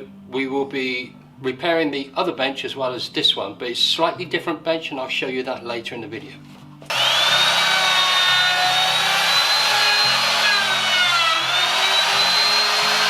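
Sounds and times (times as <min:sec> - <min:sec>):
background music: 0:00.0 - 0:13.0
electric router whining: 0:06.9 - 0:13.0.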